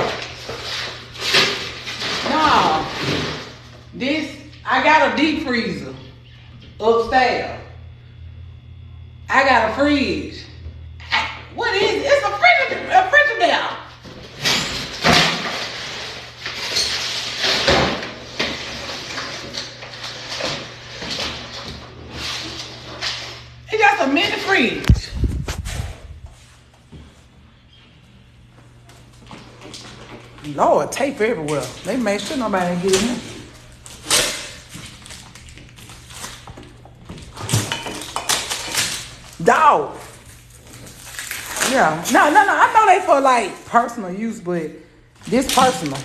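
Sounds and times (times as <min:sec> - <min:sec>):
packing tape being pulled: 0:40.1 - 0:41.8.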